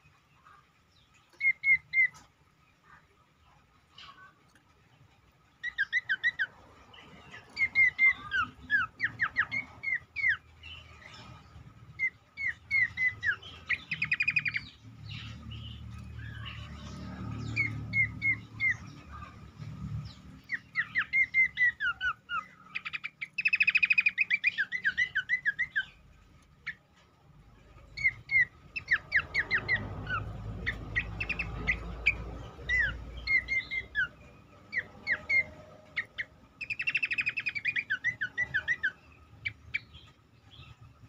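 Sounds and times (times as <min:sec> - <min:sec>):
bird singing whistled notes: 0:01.4 - 0:02.2, 0:05.6 - 0:06.5, 0:07.3 - 0:19.0, 0:20.0 - 0:26.0, 0:27.9 - 0:40.9.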